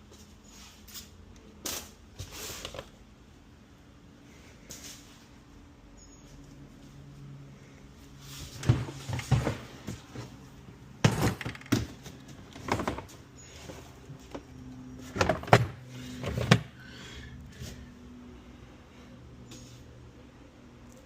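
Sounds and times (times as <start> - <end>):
faint steady hum: 0.0 - 21.0
objects knocking and clattering: 11.0 - 13.2.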